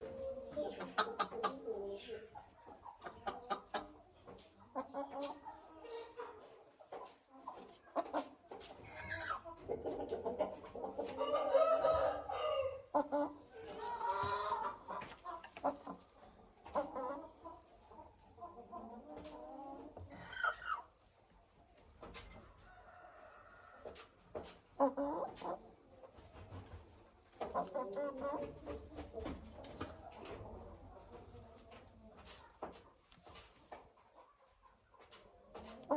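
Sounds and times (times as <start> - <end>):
chickens clucking: 0.0 - 35.9
rooster calling: 11.2 - 12.8
long chicken call: 11.2 - 14.8.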